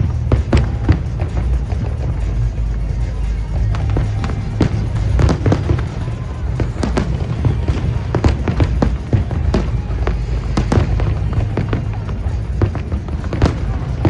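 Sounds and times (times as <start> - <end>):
deep rumble: 0.0 - 14.0
fireworks bangs and crackles: 0.0 - 14.0.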